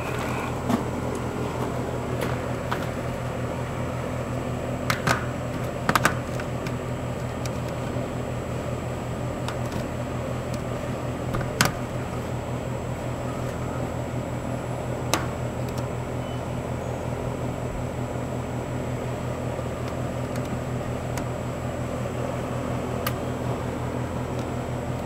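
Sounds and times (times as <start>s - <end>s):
mechanical hum: 0.0s - 25.0s.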